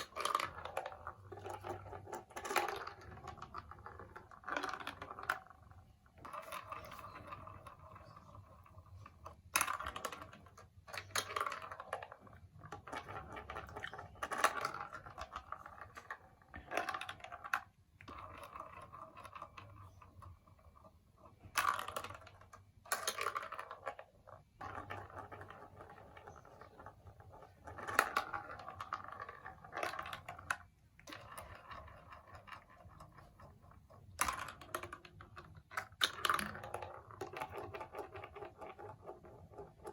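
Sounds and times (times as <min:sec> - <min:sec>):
marbles clicking on plastic: 0:00.0 - 0:39.9
marbles rolling in plastic run: 0:00.0 - 0:39.9.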